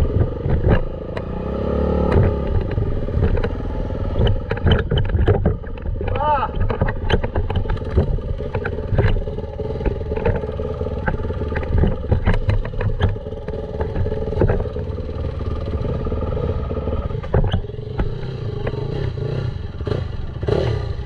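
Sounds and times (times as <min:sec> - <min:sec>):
dirt bike engine running: 0:00.0 - 0:21.0
short knocks and rattles: 0:02.1 - 0:15.6.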